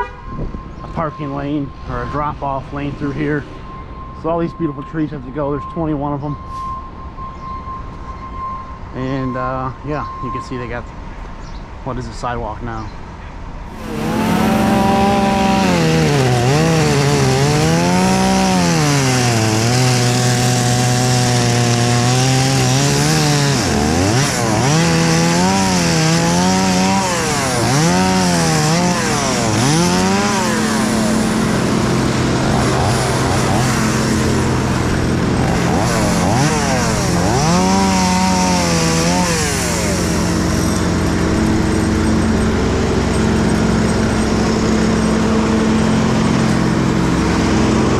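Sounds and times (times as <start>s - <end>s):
chainsaw cutting wood: 13.7s - 47.9s.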